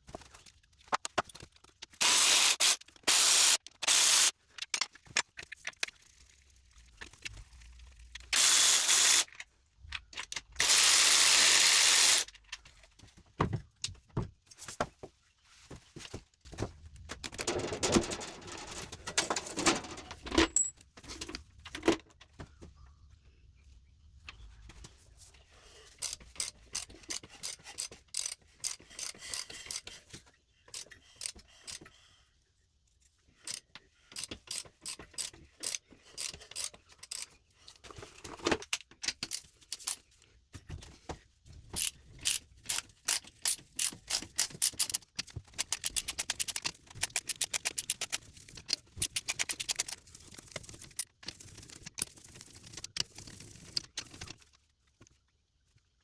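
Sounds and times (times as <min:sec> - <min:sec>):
ratchet wrench clicking: 0:02.0 - 0:04.3, 0:08.4 - 0:09.3, 0:10.6 - 0:12.3, 0:26.0 - 0:29.8, 0:30.8 - 0:31.8, 0:34.2 - 0:37.3, 0:39.3 - 0:40.0, 0:41.8 - 0:50.0.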